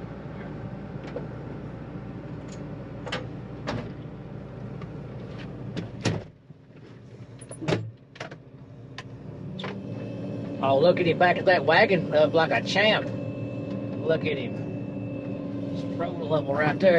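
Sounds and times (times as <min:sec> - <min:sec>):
farm machine engine running: 0:08.9 - 0:16.9.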